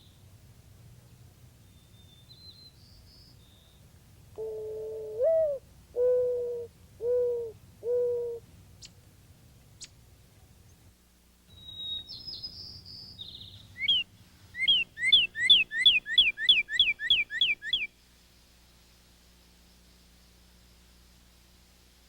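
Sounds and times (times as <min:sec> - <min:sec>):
small birds chirping: 0:01.6 - 0:03.9, 0:11.5 - 0:18.5
mourning dove cooing: 0:04.3 - 0:08.5.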